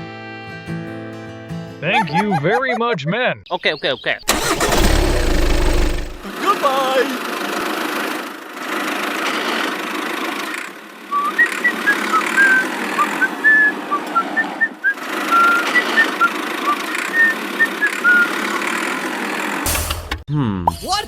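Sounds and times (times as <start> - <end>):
small motor running: 4.3 - 6.3.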